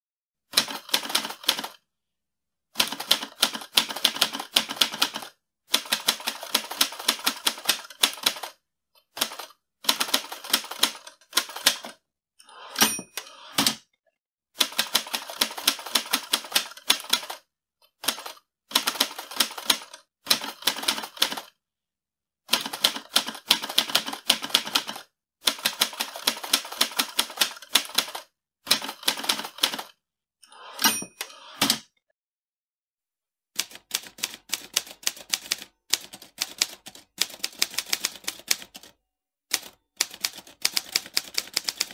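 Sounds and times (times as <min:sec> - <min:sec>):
typewriter margin bell: 0:12.7 - 0:13.4
typewriter keystrokes: 0:33.6 - 0:38.9, 0:39.5 - 0:41.9.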